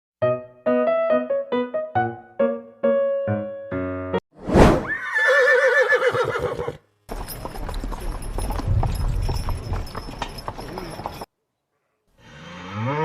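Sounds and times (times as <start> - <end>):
keyboard music: 0.2 - 4.2
short swoosh: 4.4 - 4.9
horse whinnying: 4.8 - 6.8.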